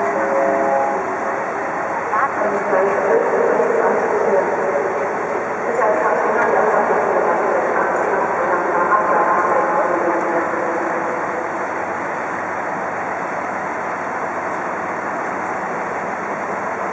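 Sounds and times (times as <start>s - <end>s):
diesel railcar running: 0.0s - 16.9s
faint whine: 0.0s - 16.9s.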